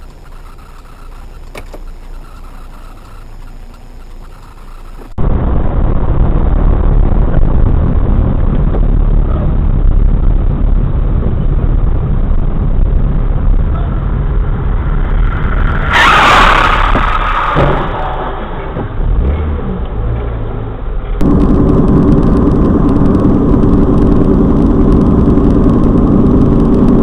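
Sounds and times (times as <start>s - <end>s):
vehicle engine and road noise: 0.0s - 27.0s
loud sudden crash: 15.6s - 19.0s.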